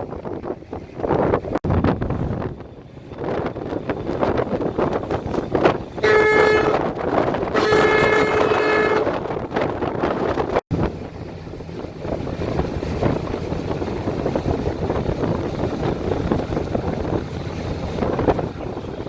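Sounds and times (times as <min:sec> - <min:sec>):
boat motor running: 0:00.0 - 0:19.0
wind buffeting microphone: 0:00.0 - 0:19.0.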